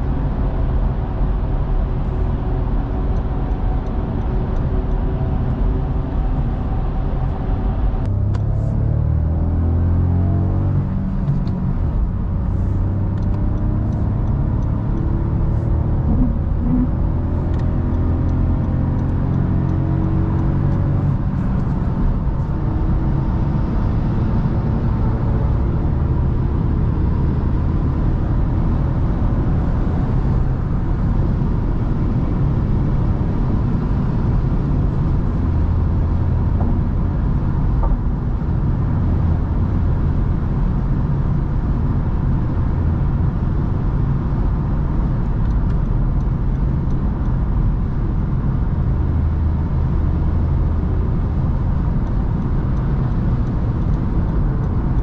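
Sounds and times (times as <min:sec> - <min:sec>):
car engine accelerating: 0:00.0 - 0:55.0
engine drone: 0:00.0 - 0:55.0.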